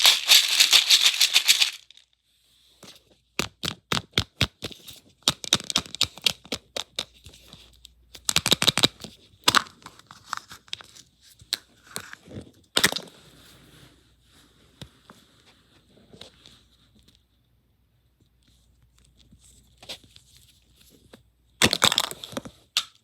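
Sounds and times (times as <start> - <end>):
plastic eggs cracking open: 0.0 - 2.0
wrapper crinkling and tearing: 0.0 - 2.0.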